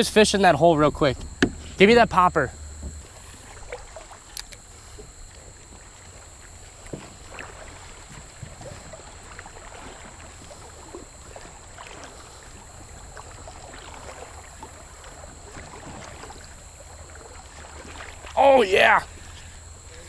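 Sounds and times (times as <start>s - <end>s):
water lapping around kayak: 0.0s - 20.0s
small splashes: 0.8s - 20.0s
knocks on kayak hull: 1.1s - 1.8s, 2.8s - 3.2s.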